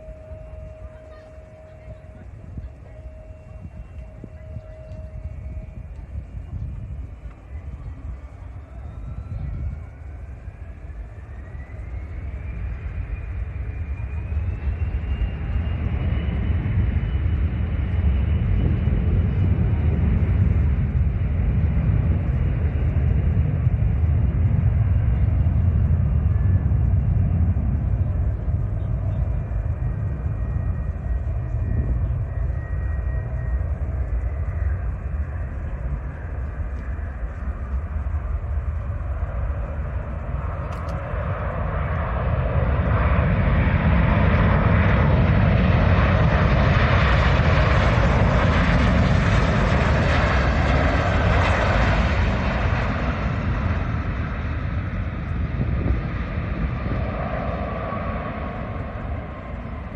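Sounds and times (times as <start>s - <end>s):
faint falling whine: 0.0s - 21.3s, 22.2s - 44.9s
jet engines passing: 0.0s - 59.9s.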